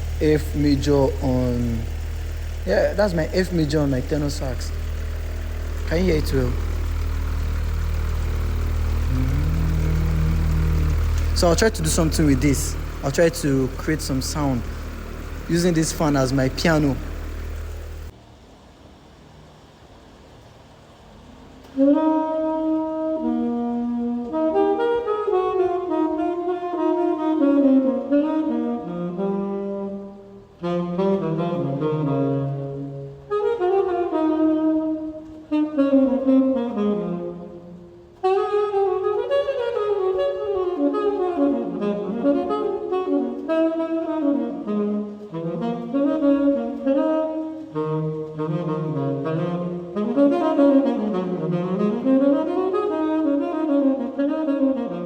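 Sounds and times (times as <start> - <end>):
tenor saxophone playing: 0.0 - 18.1, 21.8 - 55.0
electric fan humming: 0.0 - 18.2.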